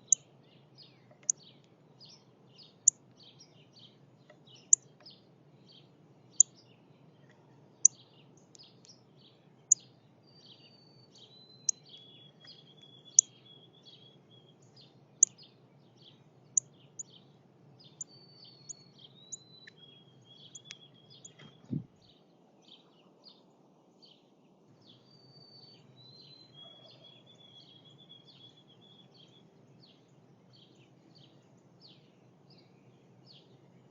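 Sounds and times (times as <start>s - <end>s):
soft bird chips and trills: 0.0s - 21.8s.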